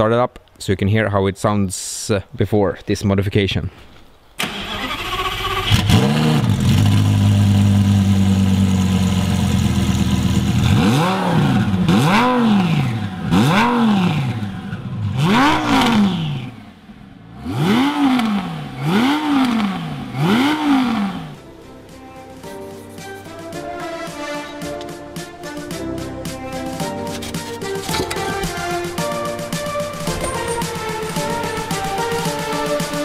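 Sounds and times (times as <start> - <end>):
car engine starting: 4.4 - 21.4, 26.7 - 33.0
car engine idling and revving: 4.4 - 21.5.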